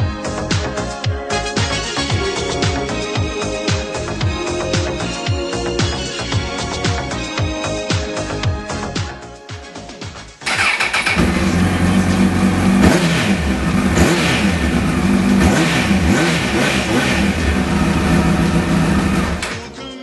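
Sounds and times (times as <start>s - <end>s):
music: 0.0s - 20.0s
motorcycle engine revving: 10.4s - 19.5s.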